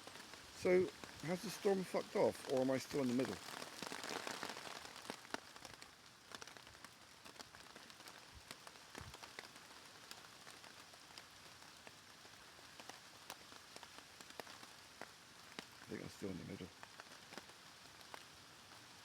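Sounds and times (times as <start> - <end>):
drops tapping on plastic tarp: 0.0 - 11.9
faint rain: 0.0 - 19.0.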